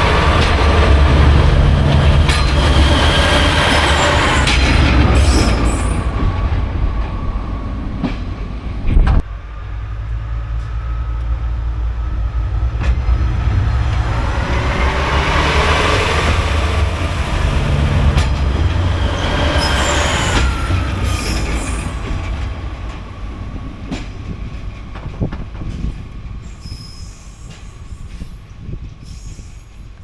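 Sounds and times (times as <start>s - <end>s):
train passing: 0.0s - 30.0s
thin wheel squeal: 19.0s - 22.0s.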